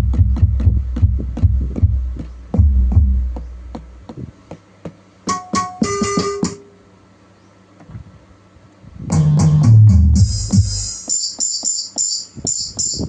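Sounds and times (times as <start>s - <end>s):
electronic drum hits: 0.0s - 3.9s, 5.3s - 6.6s, 9.1s - 11.8s.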